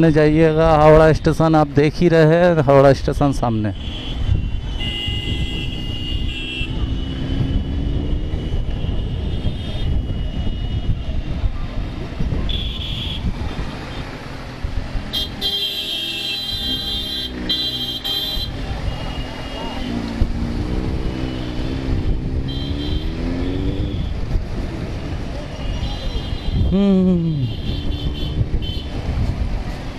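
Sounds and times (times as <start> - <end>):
road traffic rumble: 0.0 - 29.9
vehicle horns honking: 3.7 - 11.0, 12.5 - 14.2, 15.1 - 20.0, 20.7 - 24.1, 25.5 - 29.0.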